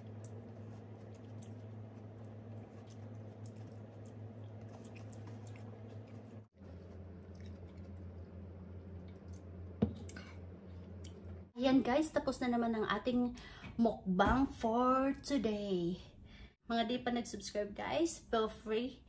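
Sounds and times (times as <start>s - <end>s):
steady low hum: 0.0s - 12.7s
mouth chewing grapes: 0.1s - 9.5s.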